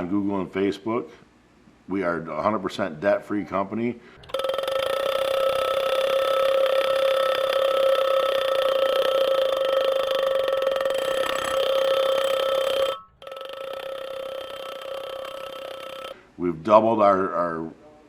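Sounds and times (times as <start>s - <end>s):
steady high tone: 4.2s - 16.2s.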